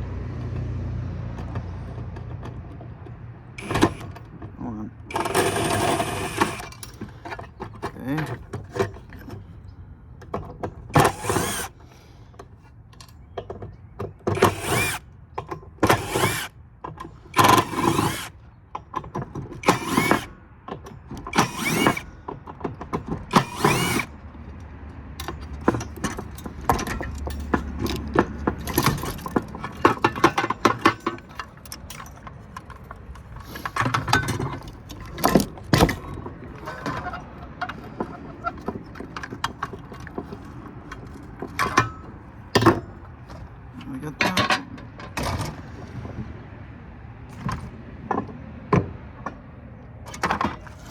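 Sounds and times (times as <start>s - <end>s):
power drill bursts: 3.6s - 4.2s, 5.1s - 6.8s, 11.0s - 11.8s, 14.3s - 15.0s, 15.8s - 16.5s, 17.3s - 18.4s, 19.6s - 20.4s, 21.3s - 22.1s, 23.3s - 24.1s
metal parts clicking and rattling: 5.1s - 9.5s, 19.0s - 20.3s, 20.9s - 24.2s, 25.2s - 45.3s.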